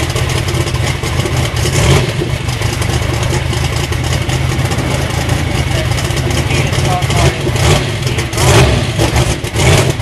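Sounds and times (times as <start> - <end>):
car engine idling loudly: 0.0 - 10.0.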